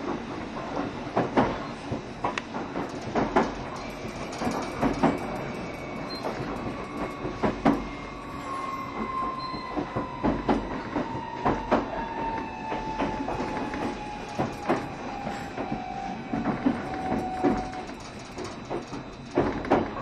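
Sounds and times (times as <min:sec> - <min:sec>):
low train rumble: 0:00.0 - 0:20.0
train whine sliding down: 0:00.0 - 0:20.0
wheels clacking and knocking: 0:00.6 - 0:08.1, 0:12.7 - 0:20.0.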